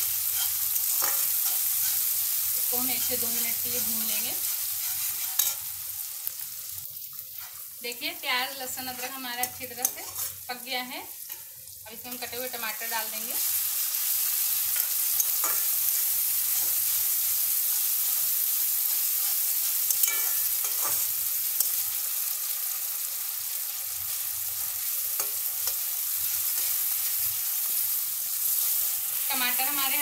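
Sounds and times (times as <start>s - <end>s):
tomatoes sizzling in oil: 0.0s - 30.0s
metal spatula scraping pan: 4.4s - 5.7s, 8.9s - 10.4s, 19.0s - 21.1s.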